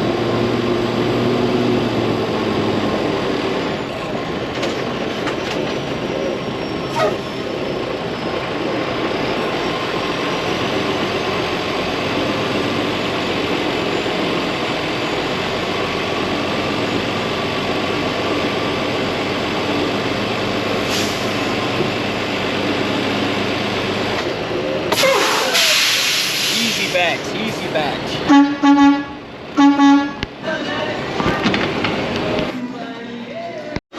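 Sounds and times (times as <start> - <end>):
diesel truck engine running: 0.0 - 33.8
air hiss: 25.0 - 27.0.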